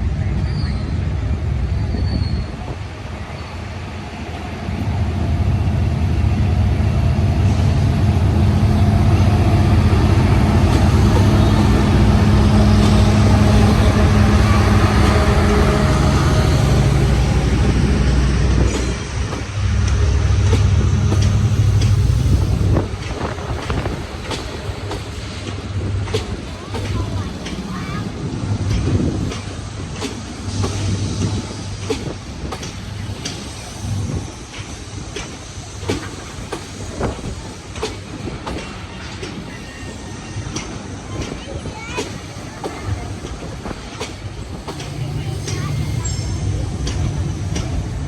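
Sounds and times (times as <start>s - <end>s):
train rumble: 0.0s - 48.0s
thin squeal of wheels or brakes: 1.7s - 2.6s, 39.4s - 40.5s
locomotive engine droning: 3.6s - 48.0s
wheels clicking over rail joints: 18.6s - 48.0s.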